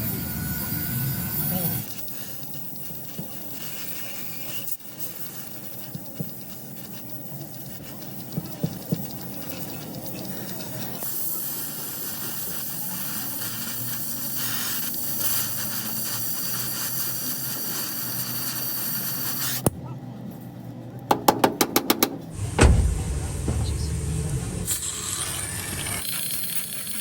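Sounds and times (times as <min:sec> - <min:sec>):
air tool click: 0:21.1 - 0:22.9
sharp knocks: 0:21.1 - 0:23.9
compressed air hissing: 0:21.2 - 0:25.2.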